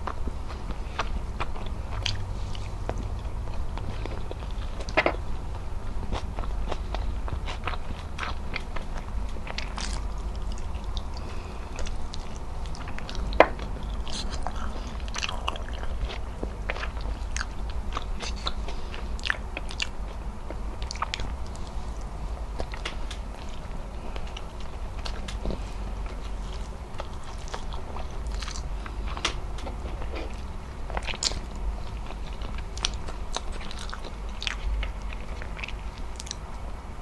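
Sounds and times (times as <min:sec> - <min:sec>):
wet sticky chewing: 0:00.0 - 0:36.6.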